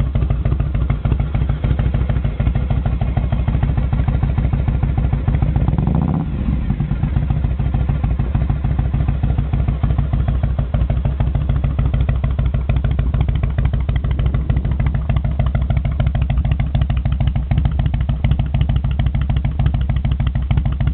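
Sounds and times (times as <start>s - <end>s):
motorcycle engine revving and idling: 0.0s - 20.9s.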